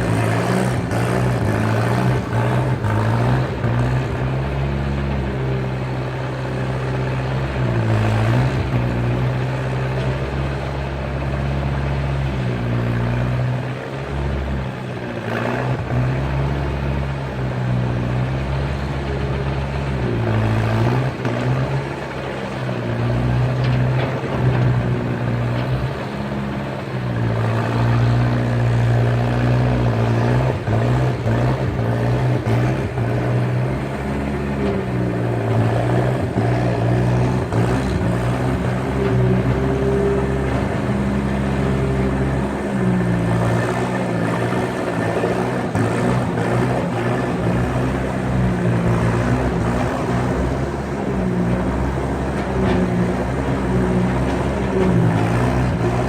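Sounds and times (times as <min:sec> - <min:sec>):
skid steer engine under load: 0:00.0 - 0:56.0
faint clatter: 0:21.0 - 0:27.6.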